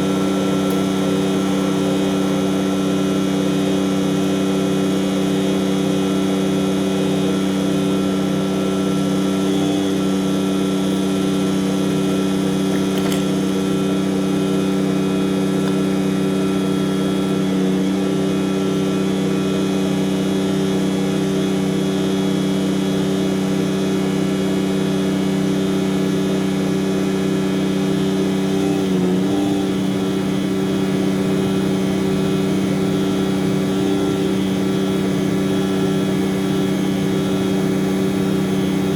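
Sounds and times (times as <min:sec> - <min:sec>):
truck diesel engine running: 0:00.0 - 0:06.5, 0:23.4 - 0:38.9.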